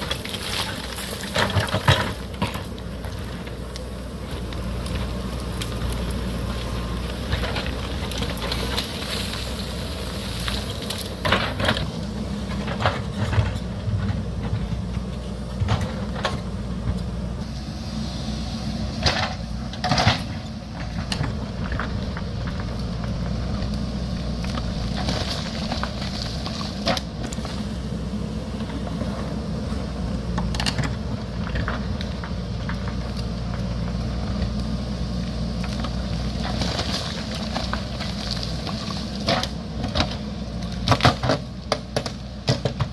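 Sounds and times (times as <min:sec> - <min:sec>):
rocks and stones clattering: 0:00.0 - 0:03.3, 0:19.8 - 0:27.4
diesel engine running under load: 0:00.0 - 0:42.9.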